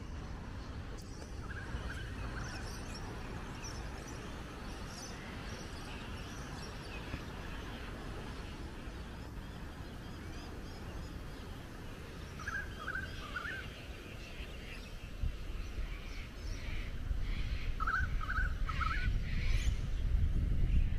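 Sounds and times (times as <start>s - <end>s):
bird warbling call: 12.4s - 14.8s, 16.2s - 19.7s.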